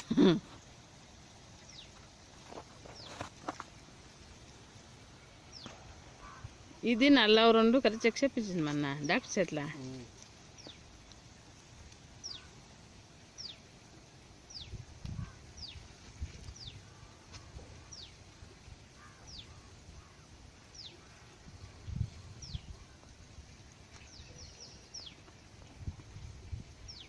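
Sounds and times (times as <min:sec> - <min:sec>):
bird chirping: 0:10.6 - 0:10.8, 0:12.2 - 0:12.5, 0:13.4 - 0:13.6.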